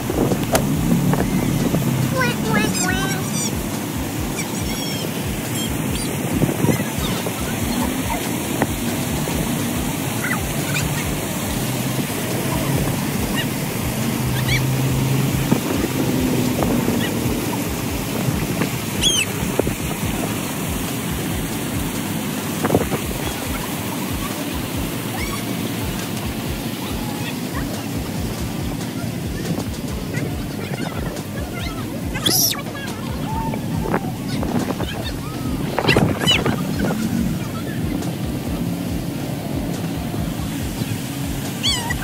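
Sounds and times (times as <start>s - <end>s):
faint voices: 0.0s - 42.0s
waterfall splashing into pond: 0.0s - 42.0s.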